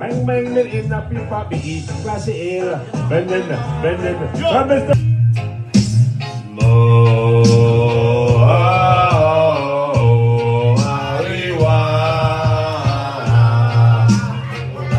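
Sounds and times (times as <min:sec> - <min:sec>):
reggae band with bass line: 0:00.0 - 0:14.9
man singing wordless notes: 0:06.4 - 0:14.9.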